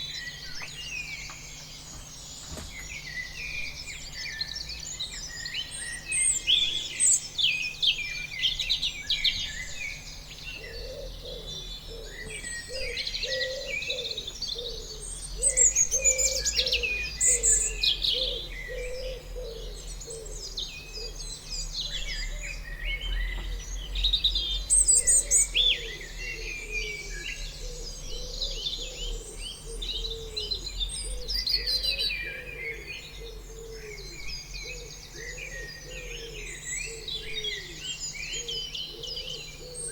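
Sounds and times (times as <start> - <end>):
chorus of birds chirping: 0.0 - 39.9.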